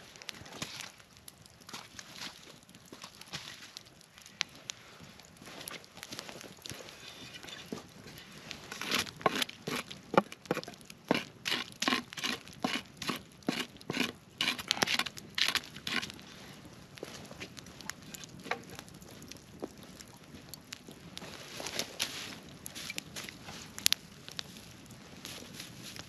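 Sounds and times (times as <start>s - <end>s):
footsteps on crackly forest ground: 0.0s - 10.8s, 15.4s - 26.0s.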